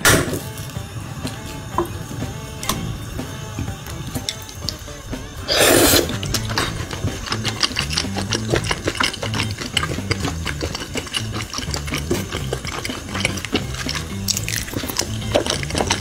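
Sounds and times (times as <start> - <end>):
wet chewing and lip-smacking: 5.5 - 16.0.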